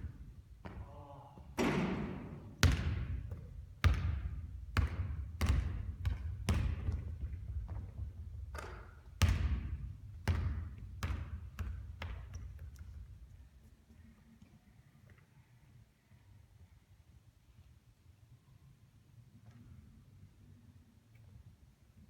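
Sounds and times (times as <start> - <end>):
basketball bouncing on hard court: 0.1 - 0.8, 1.6 - 13.0.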